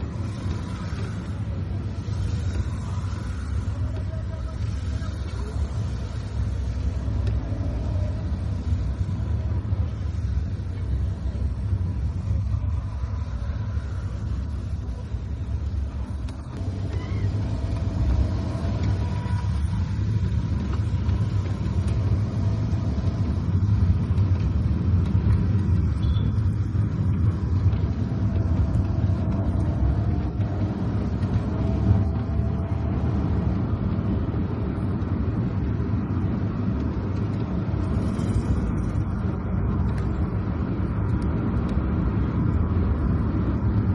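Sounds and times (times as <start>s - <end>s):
car engine rumble: 0.0s - 43.9s
tyres on wet road: 0.0s - 43.9s.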